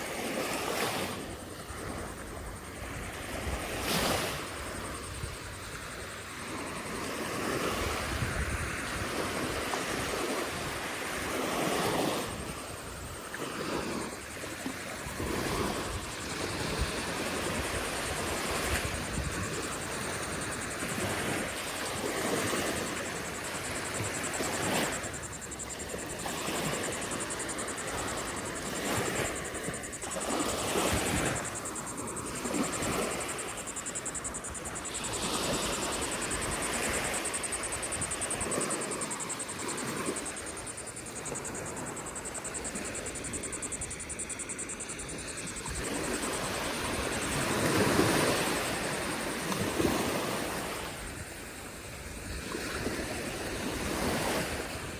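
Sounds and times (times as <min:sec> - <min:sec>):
ocean surf breaking: 0:13.4 - 0:50.9.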